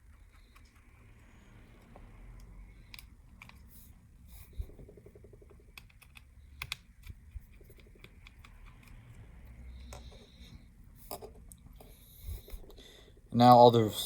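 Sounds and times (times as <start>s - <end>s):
screwdriver clicking on small screws: 1.8s - 3.8s, 5.0s - 10.1s.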